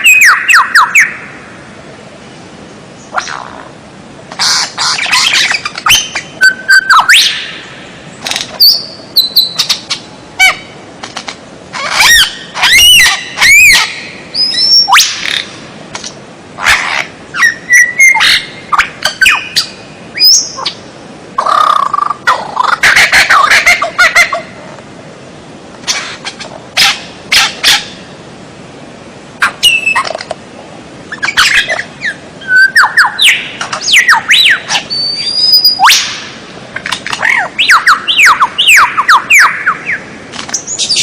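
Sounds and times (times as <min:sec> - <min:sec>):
songbird whistles and trills: 0:00.0 - 0:01.3, 0:04.4 - 0:07.6, 0:08.5 - 0:10.6, 0:11.8 - 0:15.5, 0:16.9 - 0:20.8, 0:29.4 - 0:30.2, 0:31.1 - 0:41.0.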